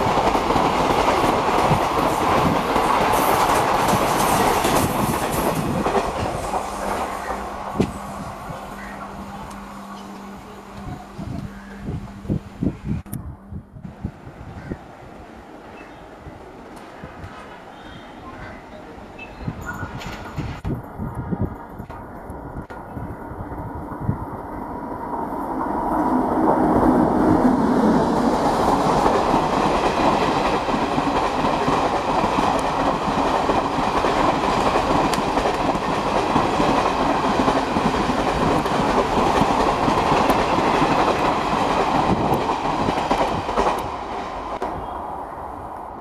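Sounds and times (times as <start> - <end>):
train wheels rumbling over rails: 0.0 - 46.0.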